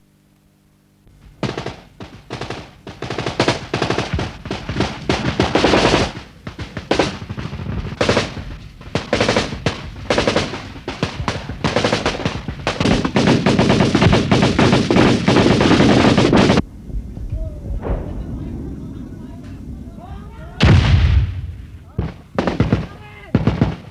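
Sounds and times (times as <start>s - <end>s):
automatic gunfire: 1.2s - 16.6s, 20.6s - 23.9s.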